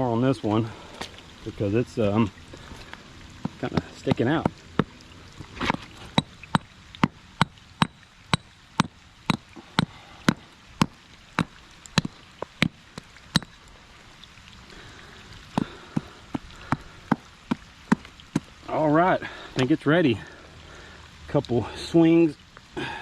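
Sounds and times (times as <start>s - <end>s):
light rain hissing: 0.0s - 23.0s
hammer striking rock: 5.7s - 12.7s, 13.3s - 13.5s.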